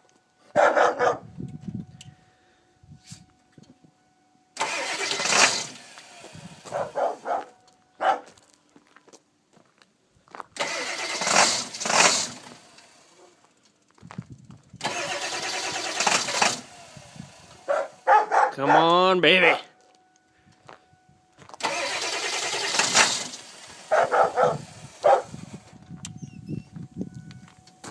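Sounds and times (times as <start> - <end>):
diesel engine cranking by starter: 4.6 - 7.4, 10.6 - 13.6, 14.6 - 18.1, 21.6 - 27.9.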